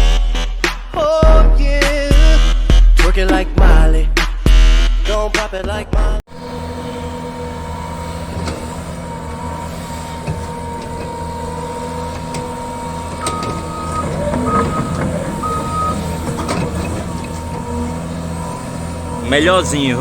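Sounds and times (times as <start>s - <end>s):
excavator diesel engine running: 6.3s - 20.0s
high-pitched beeps: 13.2s - 16.1s.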